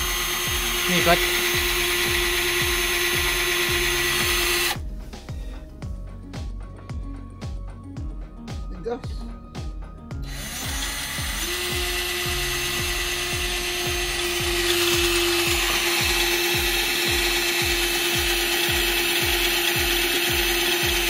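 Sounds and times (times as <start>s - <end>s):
power drill boring: 0.0s - 4.8s, 10.2s - 21.0s
background music with low beat: 0.0s - 21.0s.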